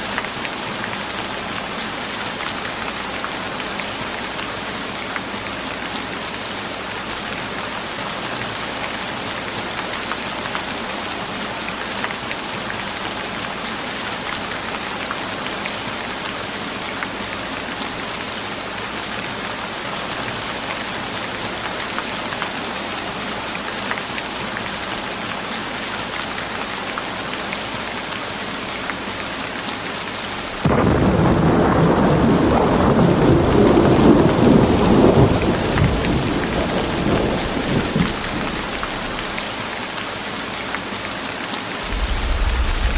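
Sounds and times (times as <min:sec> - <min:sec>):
thunder rumbling: 0:30.6 - 0:39.4, 0:41.8 - 0:42.9
rain hissing: 0:34.8 - 0:39.7, 0:41.8 - 0:42.9.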